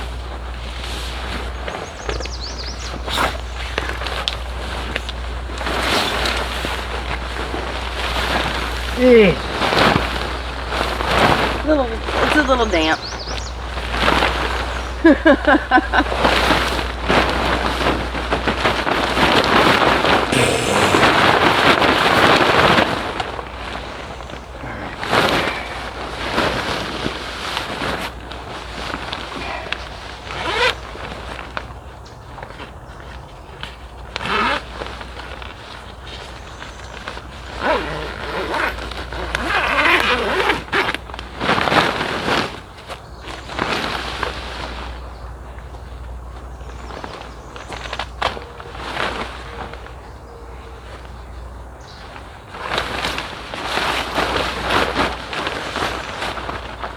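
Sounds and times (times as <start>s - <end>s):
zipper being pulled: 20.3s - 21.3s, 37.6s - 40.9s
wet tent nylon crinkling: 25.2s - 31.7s, 32.3s - 45.0s, 52.0s - 56.9s.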